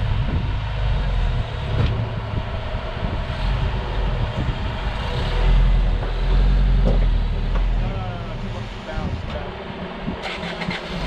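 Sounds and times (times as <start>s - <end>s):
vehicle engine running under load: 0.0s - 11.0s.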